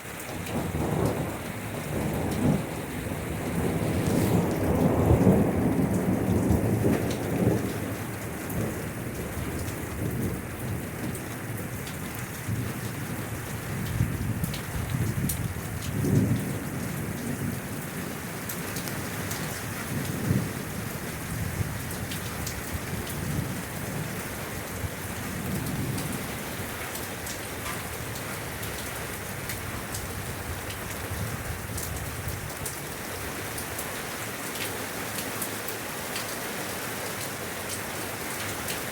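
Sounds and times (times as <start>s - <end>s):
steady rain falling: 0.0s - 38.9s
low rolling thunder: 0.2s - 18.1s, 19.6s - 32.7s.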